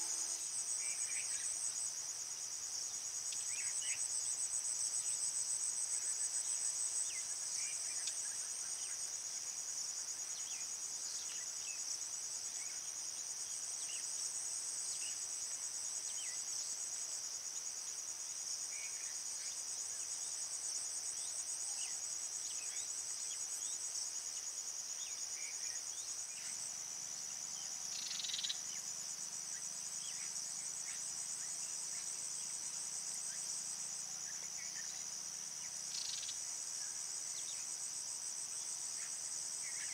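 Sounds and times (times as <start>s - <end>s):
insect chorus trilling: 0.0s - 39.9s
louder insect call: 0.0s - 39.9s.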